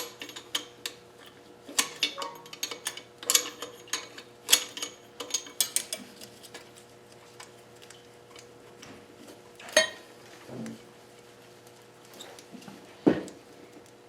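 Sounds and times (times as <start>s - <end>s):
metal tools clicking on bolts: 1.8s - 6.0s.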